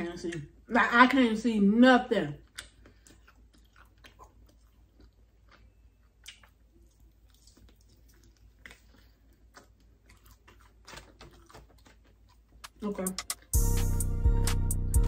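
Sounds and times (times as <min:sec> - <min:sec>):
chewing and biting: 0:02.4 - 0:13.6.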